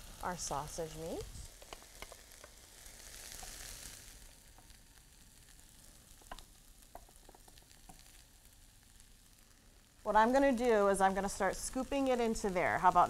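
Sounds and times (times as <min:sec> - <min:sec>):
food sizzling in a pan: 0:00.0 - 0:13.0
wooden spoon clicking on pan: 0:01.6 - 0:02.6, 0:06.2 - 0:08.1.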